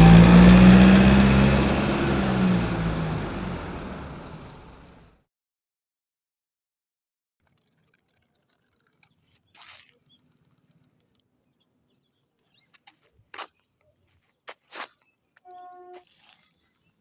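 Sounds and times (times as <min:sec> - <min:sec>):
small clicks: 0:07.4 - 0:11.3.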